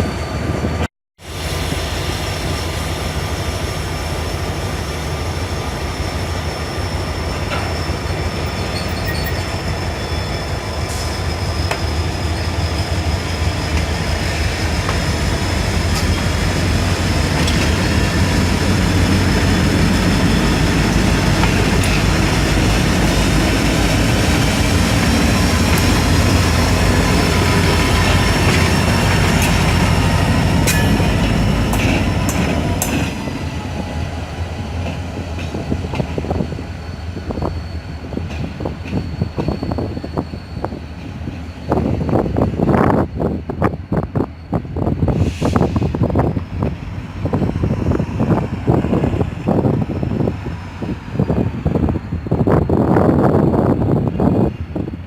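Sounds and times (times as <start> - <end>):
diesel locomotive rumble: 1.3 - 55.0
high-pitched wheel squeal: 6.5 - 14.4, 35.6 - 43.3.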